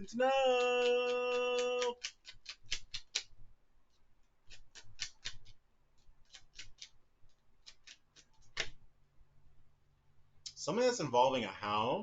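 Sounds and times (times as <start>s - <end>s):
cards being shuffled: 0.7s - 3.3s.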